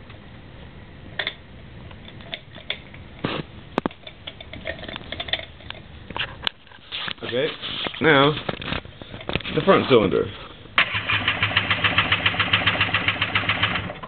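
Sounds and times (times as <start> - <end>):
short scrapes: 6.2 - 8.5.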